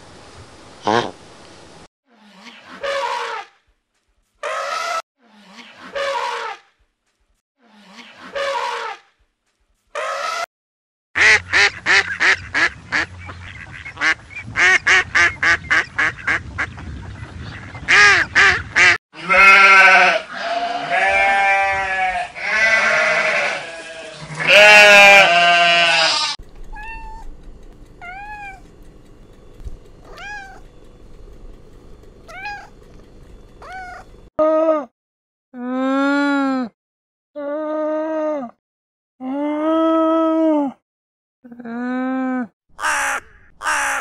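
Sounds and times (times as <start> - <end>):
sheep bleating: 19.2 - 26.4
small bird chirping: 26.5 - 34.2.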